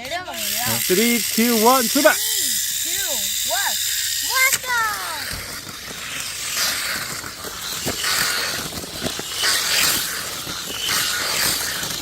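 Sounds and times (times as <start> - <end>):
toy car motors whirring: 0.0 - 12.0
plastic rattling: 4.2 - 12.0.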